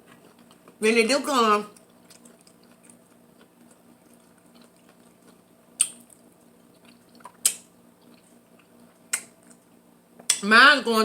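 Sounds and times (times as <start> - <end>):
wet mouth eating smacks: 1.8 - 9.7.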